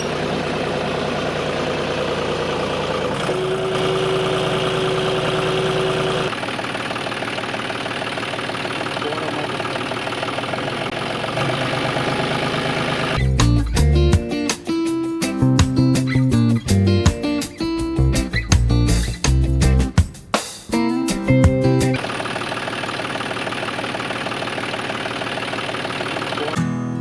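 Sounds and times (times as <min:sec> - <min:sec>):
small electric motor whirring: 0:03.0 - 0:06.4
fine rapid ticking: 0:05.9 - 0:13.2, 0:22.0 - 0:26.6.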